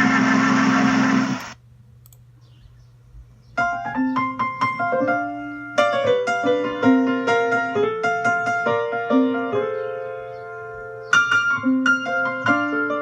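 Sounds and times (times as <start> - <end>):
piano bouncy melody: 3.6 - 13.0.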